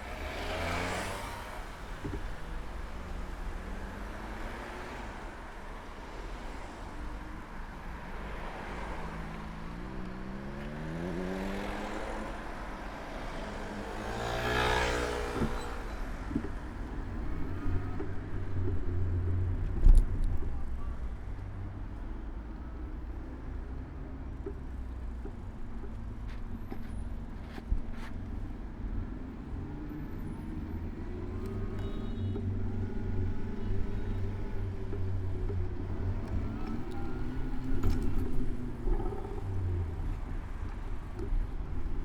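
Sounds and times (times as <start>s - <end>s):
vehicle accelerating: 0.0s - 6.6s, 8.2s - 20.6s, 28.0s - 42.0s
city traffic rumble: 0.0s - 42.0s.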